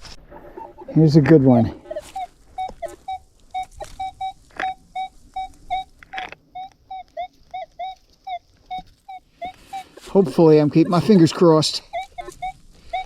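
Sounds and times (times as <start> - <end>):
metal detector short beeps: 2.2 - 5.9.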